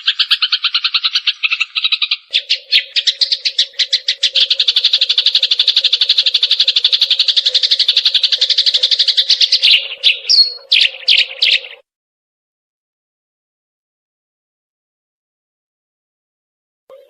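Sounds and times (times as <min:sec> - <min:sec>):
sparrow chirping: 0:00.0 - 0:11.8.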